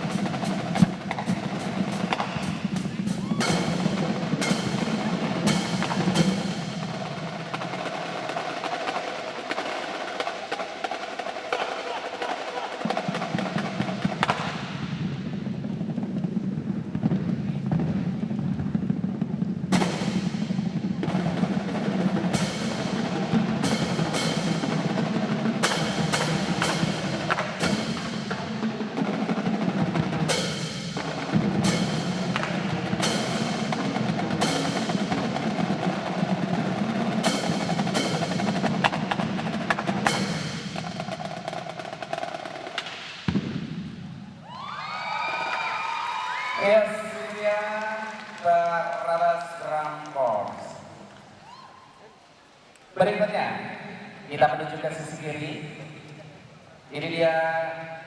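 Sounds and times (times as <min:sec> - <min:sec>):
bass drums: 0:00.0 - 0:08.5, 0:13.0 - 0:44.6
snare drums rolling: 0:00.0 - 0:51.6.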